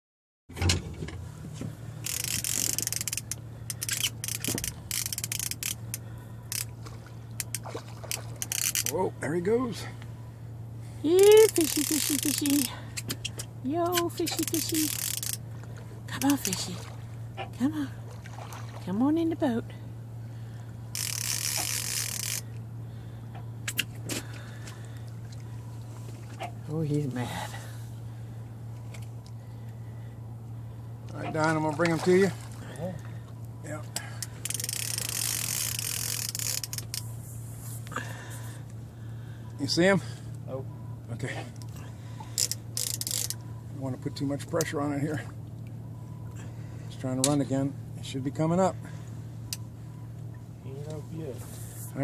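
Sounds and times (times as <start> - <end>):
steady low hum: 0.5 - 52.0
fishing reel drag ratcheting: 2.0 - 6.7, 7.4 - 9.0, 11.2 - 13.4, 14.0 - 15.4, 20.9 - 22.6, 34.0 - 37.1, 42.3 - 43.4.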